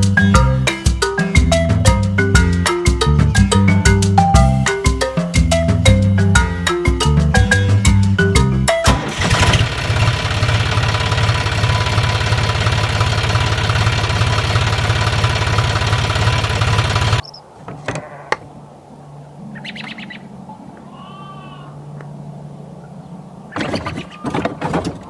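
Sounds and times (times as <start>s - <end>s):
music: 0.0s - 9.2s
engine chugging: 8.8s - 17.2s.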